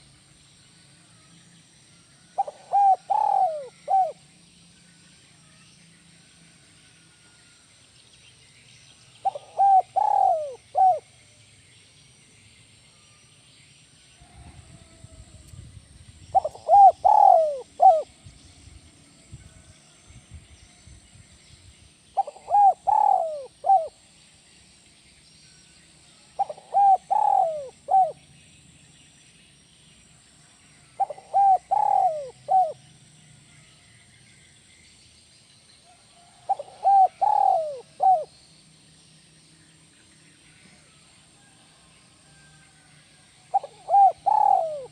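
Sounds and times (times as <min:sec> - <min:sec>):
dove cooing: 0:02.4 - 0:04.2, 0:09.2 - 0:11.1, 0:16.3 - 0:18.1, 0:22.2 - 0:24.0, 0:26.4 - 0:28.2, 0:31.0 - 0:32.8, 0:36.3 - 0:38.3, 0:43.5 - 0:44.9.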